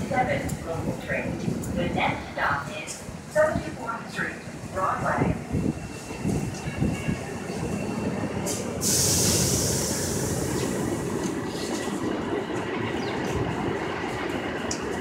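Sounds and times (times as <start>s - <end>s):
subway train rumbling: 0.0s - 15.0s
hiss of air: 8.5s - 11.1s.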